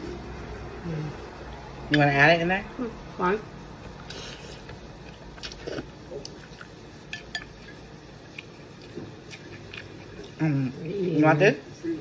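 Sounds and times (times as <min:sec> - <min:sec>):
utensils clinking against dishes: 0:07.1 - 0:07.8.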